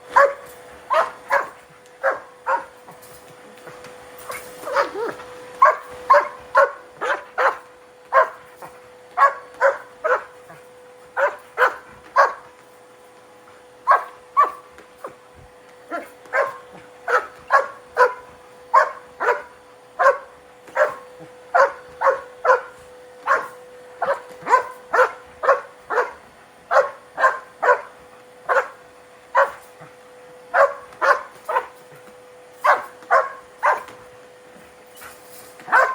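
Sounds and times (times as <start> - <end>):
vacuum cleaner humming: 0.0 - 35.9
dog barking sharply: 0.2 - 2.7, 32.6 - 33.9, 35.7 - 35.9.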